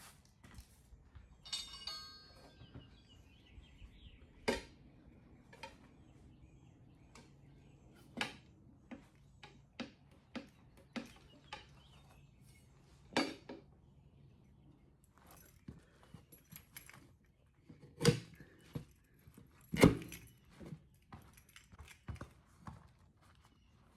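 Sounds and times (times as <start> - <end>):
tools clinking on metal wheel: 1.3 - 3.4, 15.2 - 22.2.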